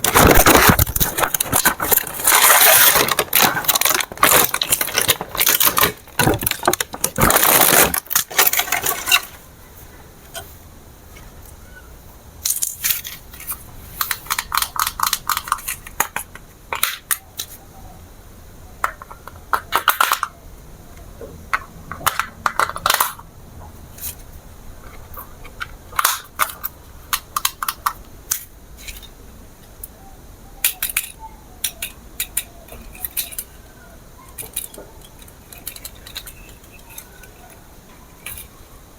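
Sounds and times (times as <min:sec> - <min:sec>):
small hard items clicking: 0:00.0 - 0:09.4, 0:12.4 - 0:17.6, 0:25.0 - 0:29.1, 0:30.6 - 0:38.6.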